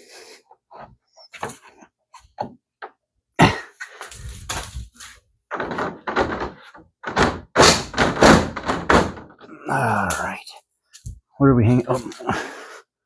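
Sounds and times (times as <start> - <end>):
plastic parts knocking and scraping: 3.9 - 9.5.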